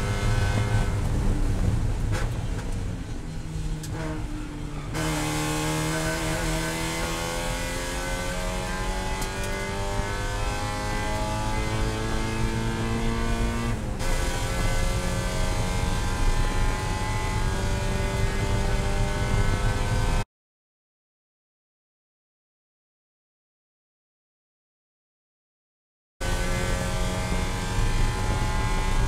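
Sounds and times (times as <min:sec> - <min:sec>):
car engine revving at full throttle: 0:00.0 - 0:20.2, 0:26.2 - 0:29.0.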